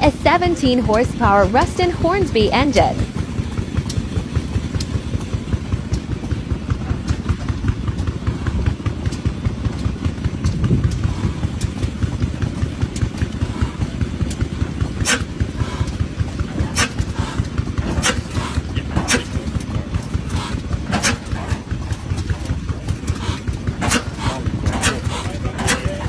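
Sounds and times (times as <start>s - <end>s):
engine running at a steady beat: 0.0s - 26.0s
sharp clicks: 7.0s - 26.0s.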